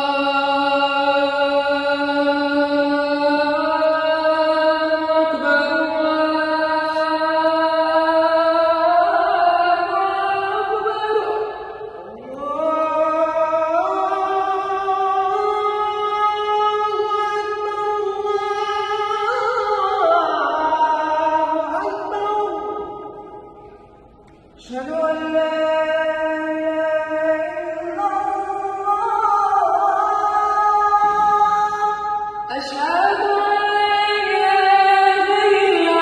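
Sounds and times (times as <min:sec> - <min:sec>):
person chanting religious melody: 0:00.0 - 0:36.0.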